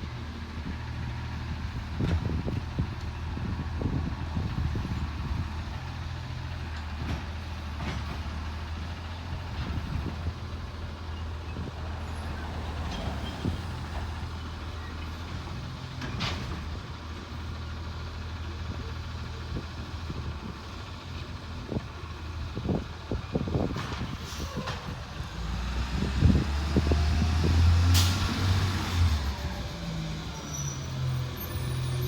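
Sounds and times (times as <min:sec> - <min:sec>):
truck engine humming: 0:00.4 - 0:23.7.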